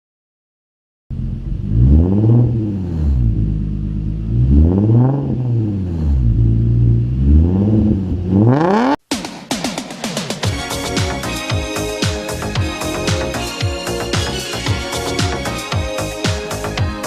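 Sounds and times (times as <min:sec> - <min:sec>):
engine revving: 0:01.1 - 0:09.1.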